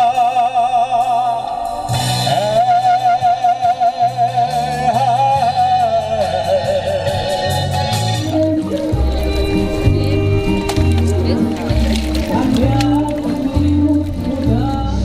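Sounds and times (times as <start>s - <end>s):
person singing with vibrato: 0.0s - 15.0s
instrumental accompaniment: 4.1s - 15.0s.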